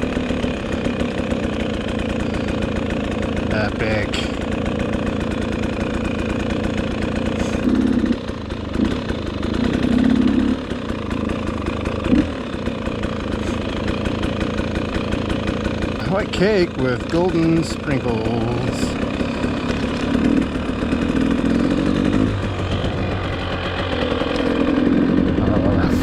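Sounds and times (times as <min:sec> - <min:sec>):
dirt bike engine running: 0:00.0 - 0:26.0.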